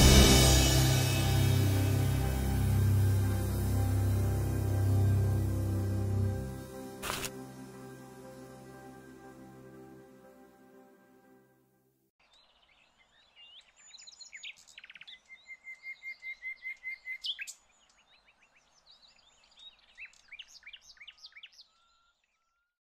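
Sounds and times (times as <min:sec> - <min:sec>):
background music: 0:00.0 - 0:11.9.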